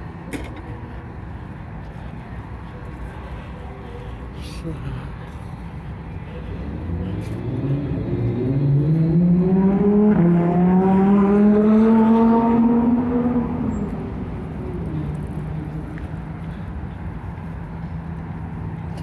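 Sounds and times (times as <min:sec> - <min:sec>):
vehicle engine accelerating past: 0:06.5 - 0:16.0.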